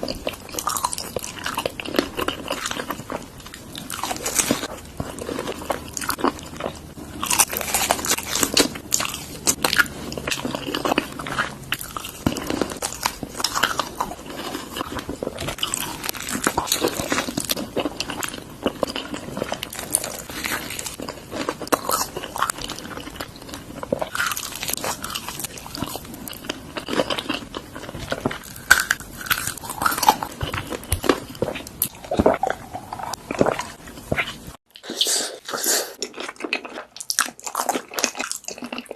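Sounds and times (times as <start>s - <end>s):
person crunching and chewing food: 0.0s - 38.9s.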